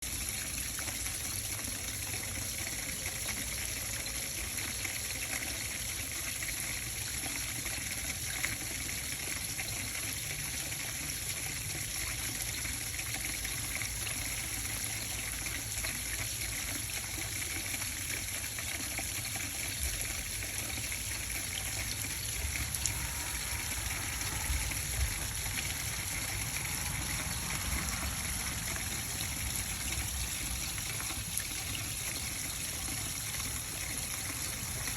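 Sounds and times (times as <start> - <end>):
water running down a rain chain: 0.0 - 34.9.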